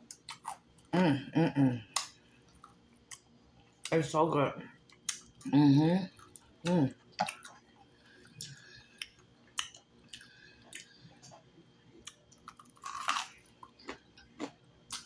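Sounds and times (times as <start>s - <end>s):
chewing with lip smacks: 4.8s - 5.5s, 6.1s - 15.0s.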